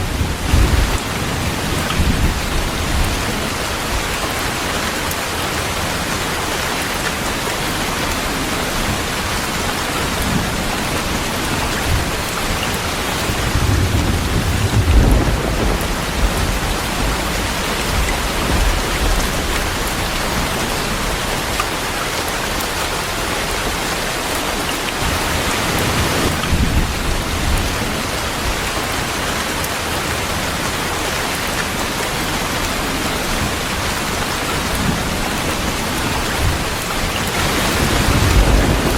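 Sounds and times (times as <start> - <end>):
thunder rumbling: 0.0 - 5.0, 8.6 - 21.9, 25.0 - 29.3, 33.3 - 38.9
heavy rain: 0.0 - 38.9.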